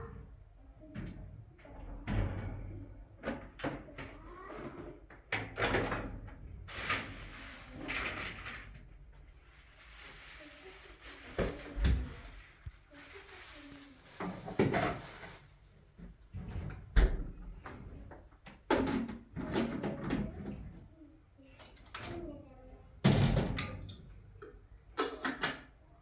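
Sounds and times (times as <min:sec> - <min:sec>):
rustling: 0:06.7 - 0:15.6.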